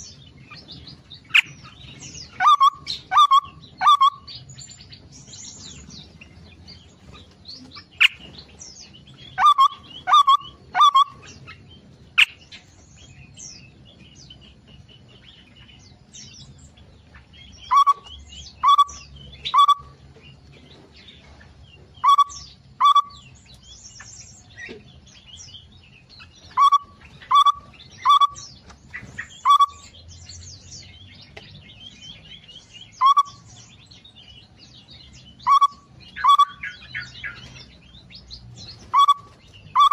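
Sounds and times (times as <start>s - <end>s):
soft chirping and twittering: 0.0s - 39.9s
songbirds calling loudly: 0.0s - 39.9s.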